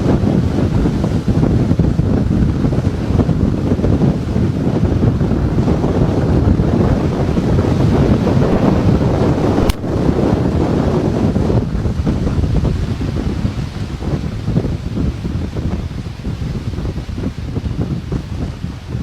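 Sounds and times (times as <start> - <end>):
wind roaring on microphone: 0.0 - 19.0
sharp click: 9.6 - 9.9.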